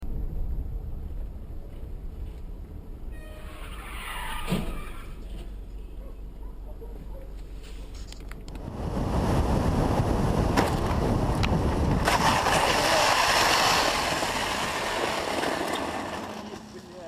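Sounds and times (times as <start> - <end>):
vehicle road noise: 0.0 - 17.0
rushing wind: 7.8 - 16.5.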